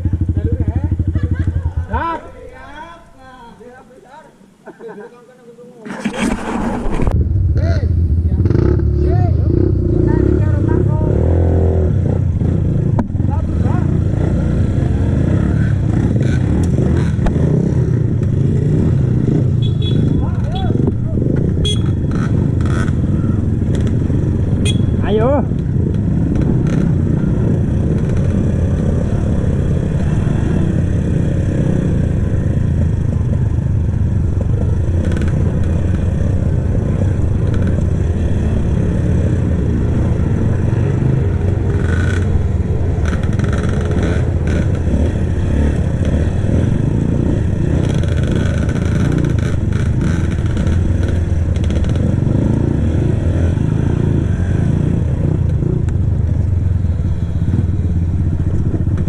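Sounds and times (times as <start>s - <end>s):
motorcycle engine running: 0.0s - 2.0s, 6.2s - 59.0s
motorcycle clattering over rough ground: 5.9s - 7.2s, 32.7s - 38.0s, 47.6s - 52.7s.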